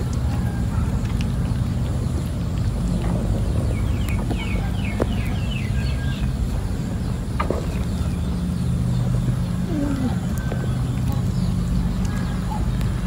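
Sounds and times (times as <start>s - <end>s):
bird chirping: 0.0s - 13.0s
low rumble: 0.0s - 13.0s.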